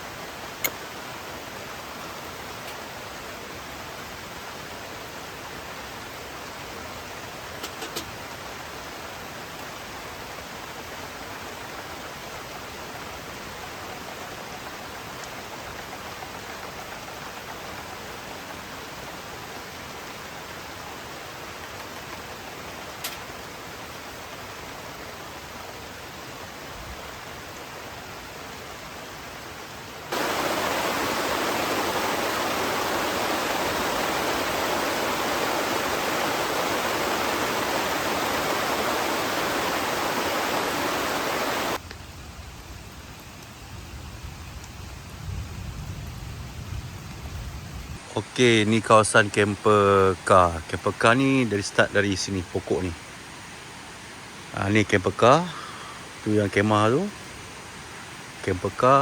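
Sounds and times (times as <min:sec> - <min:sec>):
water rushing: 0:00.0 - 0:41.8.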